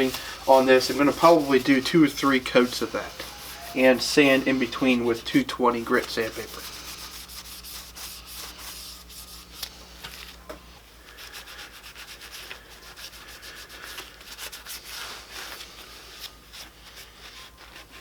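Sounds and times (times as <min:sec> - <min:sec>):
hand rubbing on wood: 0:00.0 - 0:09.7.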